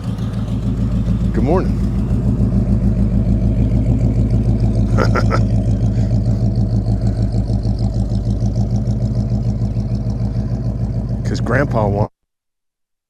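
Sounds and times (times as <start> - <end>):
car engine running: 0.0 - 12.1.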